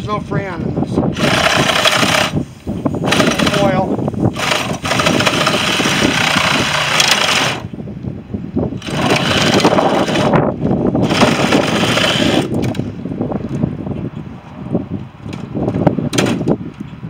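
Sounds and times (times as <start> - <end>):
power tool cutting metal: 1.2 - 2.4, 3.1 - 7.7.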